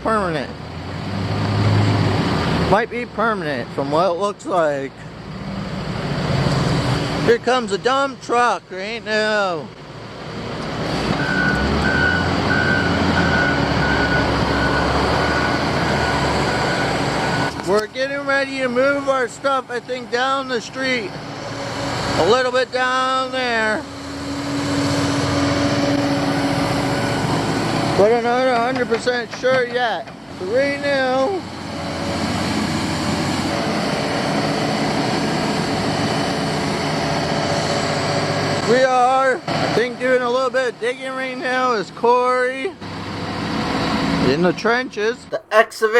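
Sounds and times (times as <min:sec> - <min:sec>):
truck engine rumble: 0:00.0 - 0:38.7
reversing alarm beeping: 0:11.2 - 0:17.6.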